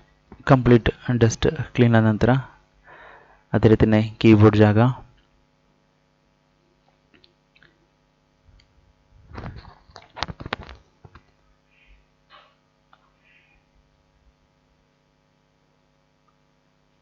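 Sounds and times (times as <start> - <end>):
laptop keyboard clicks and rustles: 9.3 - 11.4.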